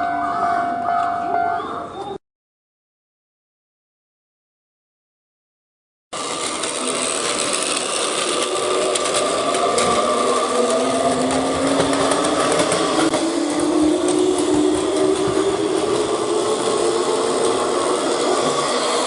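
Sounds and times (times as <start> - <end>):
electric traction motors whining: 6.2 - 19.0
train running rumble: 6.2 - 19.0.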